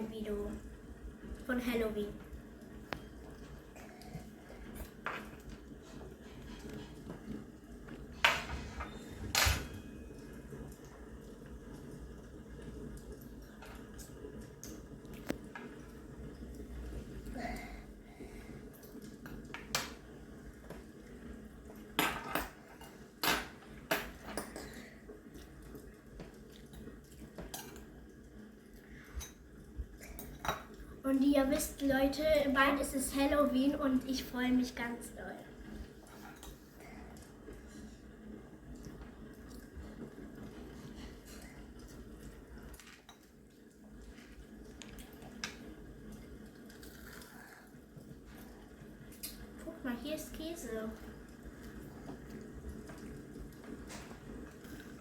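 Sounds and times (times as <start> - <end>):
dishes and utensils clinking: 8.2 - 10.1.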